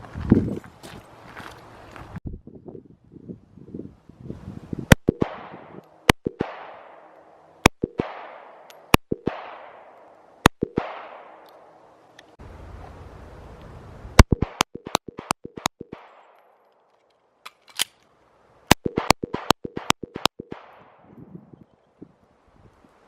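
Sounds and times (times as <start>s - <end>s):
gunshots with echo: 4.9s - 11.4s, 18.7s - 21.1s.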